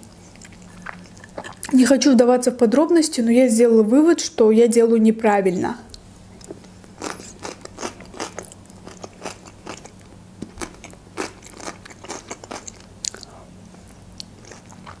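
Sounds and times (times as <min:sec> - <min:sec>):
cucumber crunching while chewing: 0:07.0 - 0:15.0.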